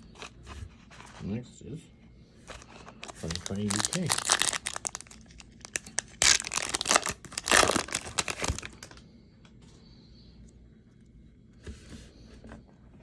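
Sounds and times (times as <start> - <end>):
wrapper crinkling: 2.5 - 9.0
wrapper tearing: 2.5 - 9.0.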